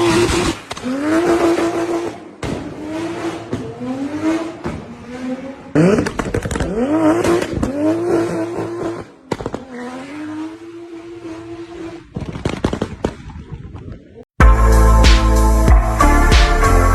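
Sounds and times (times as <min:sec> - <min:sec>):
car engine revving: 0:00.0 - 0:12.2
exhaust pops: 0:05.8 - 0:07.8.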